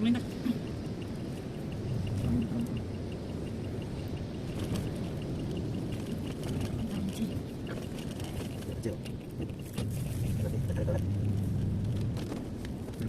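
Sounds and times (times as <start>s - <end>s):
fast even ticking: 0.0s - 10.4s
car engine and road rumble: 0.0s - 13.0s.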